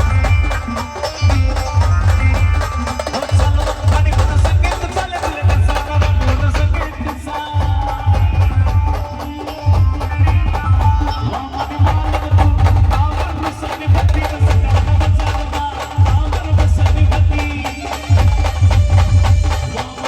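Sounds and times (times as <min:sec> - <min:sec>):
band playing dance tune: 0:00.0 - 0:20.0
heavy bass drum pattern: 0:00.0 - 0:20.0.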